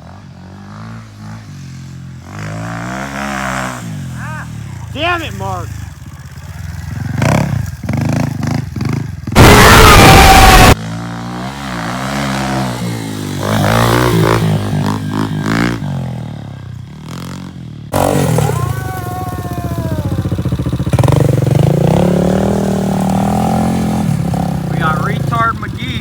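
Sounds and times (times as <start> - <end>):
off-road engines revving: 0.0 - 26.0
loud rushing blast: 9.3 - 10.8.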